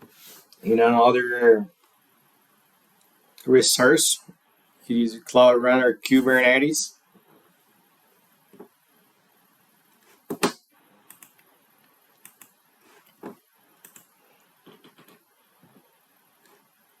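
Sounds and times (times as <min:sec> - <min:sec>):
computer keyboard clicks: 0:11.1 - 0:11.4, 0:12.2 - 0:12.5, 0:13.8 - 0:14.1.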